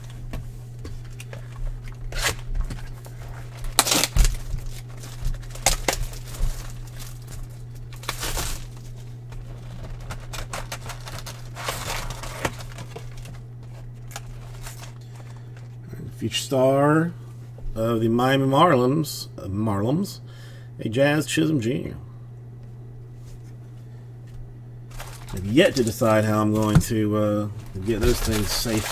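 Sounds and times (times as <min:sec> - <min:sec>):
steady low hum: 0:00.0 - 0:28.9
wrapper tearing and crinkling: 0:02.1 - 0:15.7, 0:24.9 - 0:26.8, 0:27.6 - 0:28.9.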